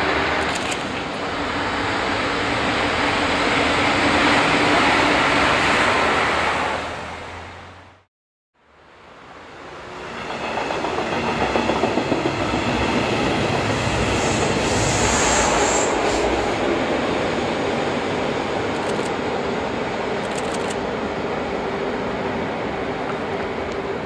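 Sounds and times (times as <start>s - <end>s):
train wheels rumbling on bridge: 10.0s - 21.0s.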